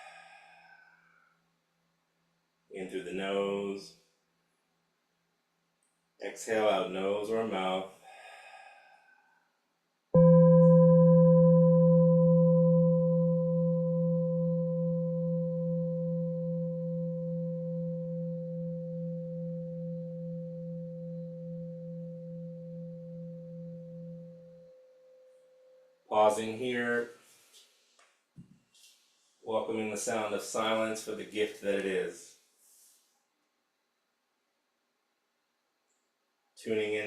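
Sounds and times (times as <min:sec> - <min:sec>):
singing bowl ringing: 0:10.2 - 0:26.0.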